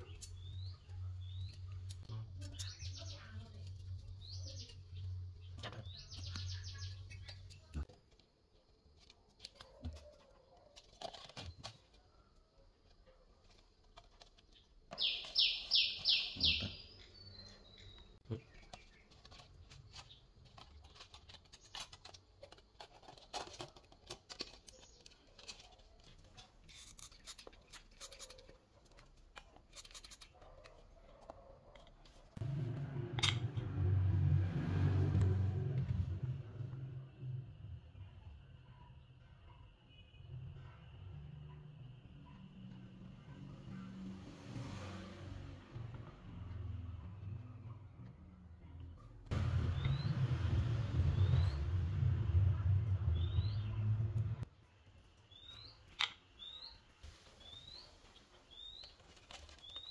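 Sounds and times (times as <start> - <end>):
small birds chirping: 0.0 - 8.0, 9.6 - 31.6, 49.6 - 50.2, 53.0 - 59.9
clicks and rustles of small parts: 7.1 - 15.0, 17.0 - 32.4
low hum: 32.4 - 37.8, 49.3 - 54.5.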